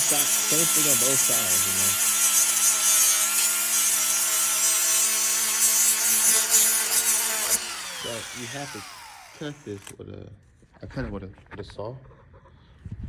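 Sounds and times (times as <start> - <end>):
rotary power tool grinding: 0.0 - 10.0.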